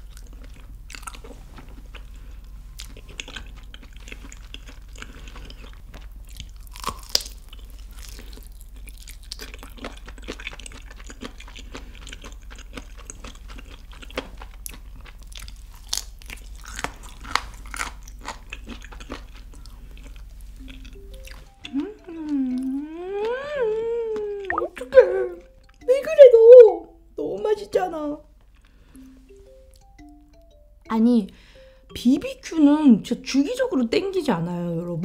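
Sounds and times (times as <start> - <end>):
chewing fried chicken with crunches: 0.0 - 24.4
steady low hum: 0.0 - 35.0
wet mouth clicks: 24.1 - 24.8.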